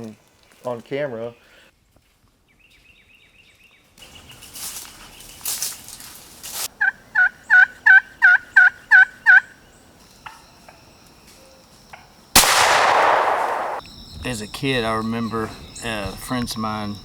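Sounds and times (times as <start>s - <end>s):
turkey yelps: 6.8s - 9.5s.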